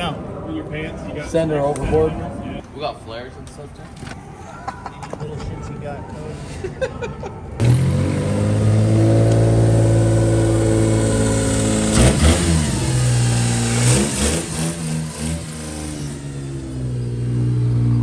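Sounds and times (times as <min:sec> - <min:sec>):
engine revving: 0:07.6 - 0:18.0
vehicle engine running: 0:07.6 - 0:18.0.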